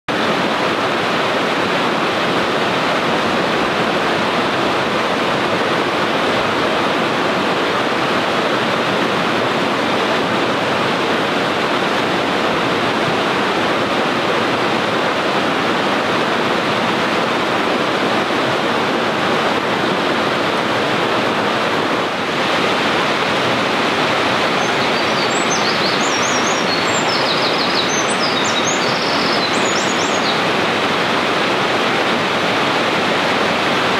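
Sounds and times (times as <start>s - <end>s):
stream rushing: 0.1s - 33.9s
wren trilling song: 24.5s - 30.4s.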